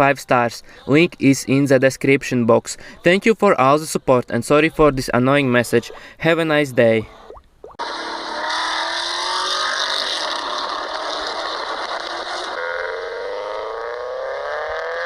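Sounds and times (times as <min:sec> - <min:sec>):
car engine accelerating: 0:07.8 - 0:15.0.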